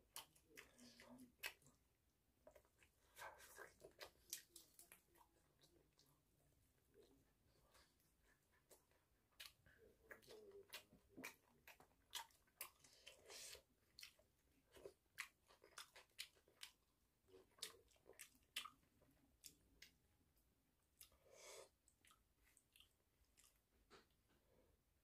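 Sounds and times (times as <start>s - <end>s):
chewing crunches: 2.4s - 6.1s, 7.7s - 20.0s.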